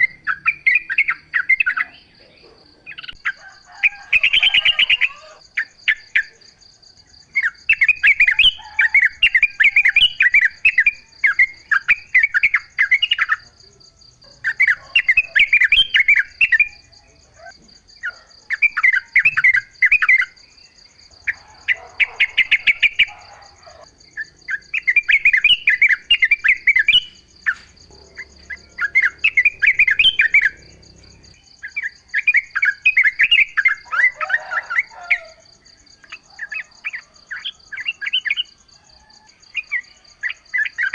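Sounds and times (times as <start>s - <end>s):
bird chattering song: 0.0s - 6.6s, 7.3s - 35.3s
high insect buzz: 20.3s - 31.6s.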